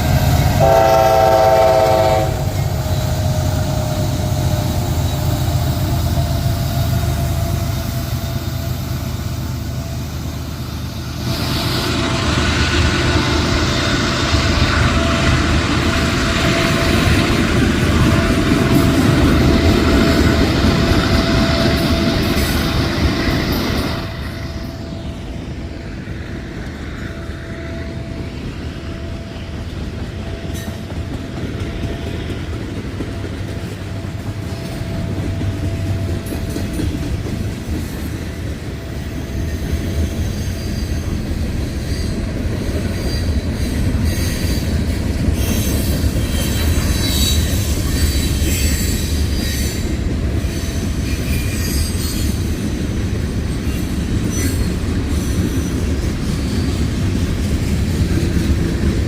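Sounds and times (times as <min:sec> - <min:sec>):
freight train wheels rumbling: 0:00.0 - 0:59.0
high wheel squeal: 0:39.2 - 0:52.7, 0:53.5 - 0:57.0.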